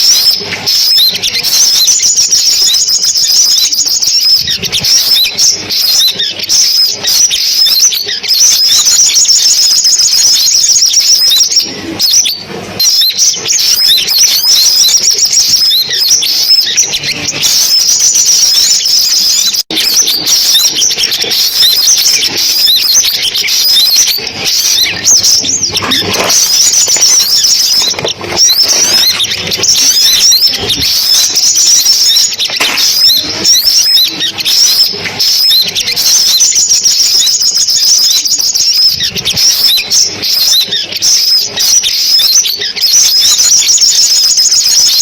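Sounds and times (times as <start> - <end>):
birds chirping and trilling: 0.0 - 45.0.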